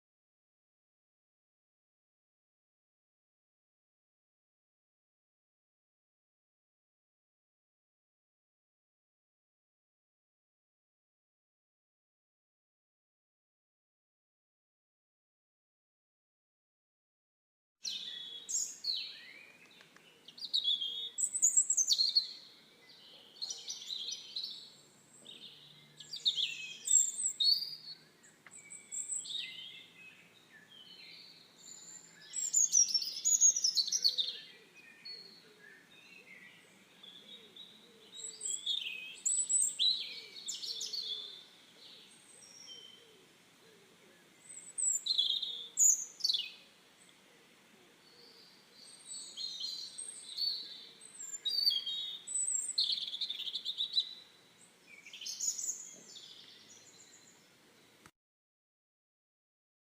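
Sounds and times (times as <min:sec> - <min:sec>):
songbird singing: 0:17.8 - 0:58.1.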